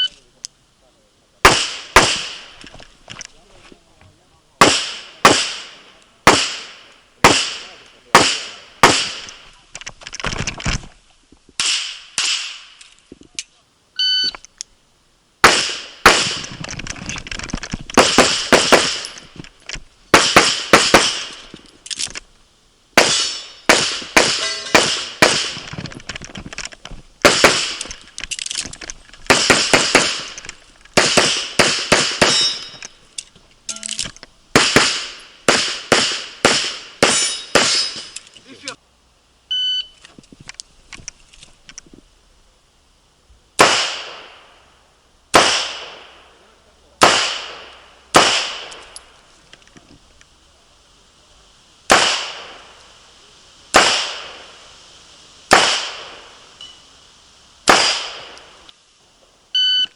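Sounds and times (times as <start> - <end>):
rapid handgun fire: 1.4 - 2.6, 4.6 - 9.5, 11.6 - 12.8, 15.4 - 16.6, 18.0 - 19.2, 20.1 - 21.5, 23.0 - 25.8, 27.2 - 28.0, 29.3 - 30.4, 31.0 - 32.8, 34.5 - 38.0, 43.6 - 44.4, 45.3 - 46.2, 47.0 - 49.0, 51.9 - 52.8, 53.7 - 54.7, 55.5 - 56.4, 57.6 - 58.6.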